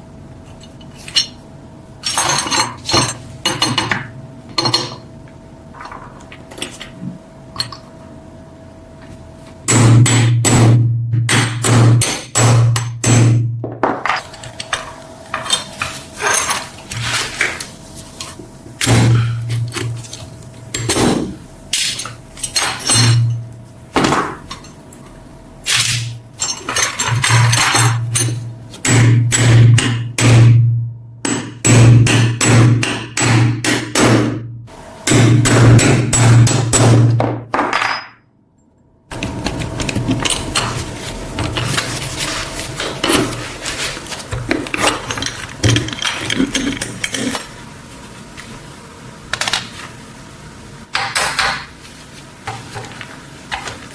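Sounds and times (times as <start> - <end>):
hammer striking metal: 9.7 - 13.5, 20.8 - 23.4, 25.7 - 38.2.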